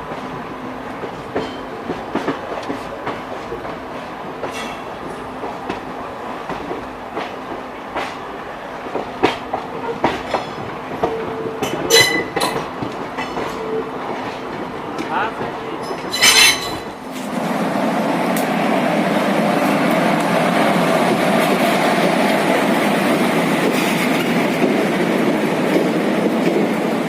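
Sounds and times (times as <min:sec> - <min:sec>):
train rumble and hum: 0:00.0 - 0:27.0
train wheels clacking over rail joints: 0:00.9 - 0:08.2, 0:08.8 - 0:17.3.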